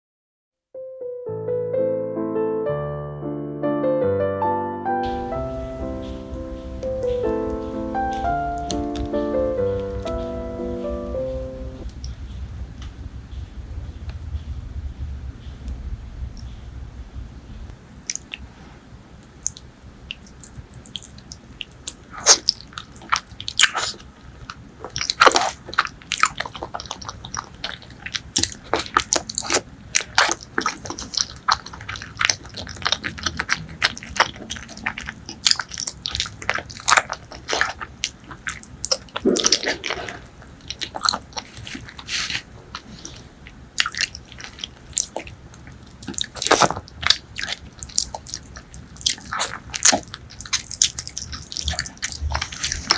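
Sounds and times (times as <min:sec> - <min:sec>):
person chewing food: 0:05.8 - 0:12.3, 0:18.0 - 0:52.9.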